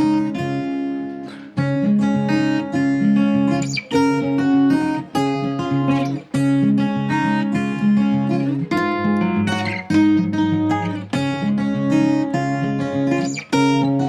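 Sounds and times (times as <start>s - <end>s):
acoustic guitar chords: 0.0s - 14.0s.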